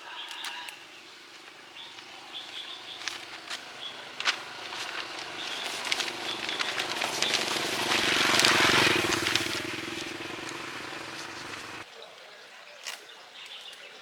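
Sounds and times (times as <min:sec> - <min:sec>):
vehicle engine passing by: 0:01.3 - 0:11.8.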